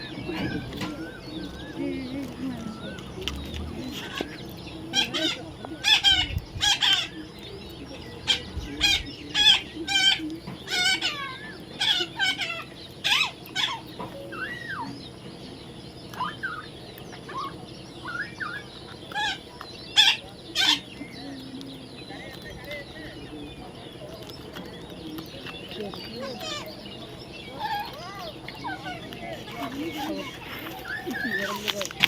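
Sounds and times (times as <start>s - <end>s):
parrot squawking: 8.3s - 14.9s, 16.1s - 20.9s
parrot whistling: 17.3s - 19.4s.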